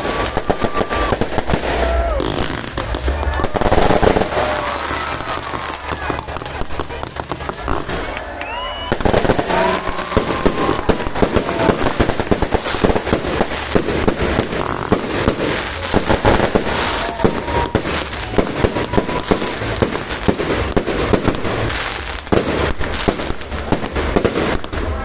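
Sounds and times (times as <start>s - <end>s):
fireworks bangs and crackles: 0.0s - 25.0s
faint firework whistles: 7.5s - 20.3s.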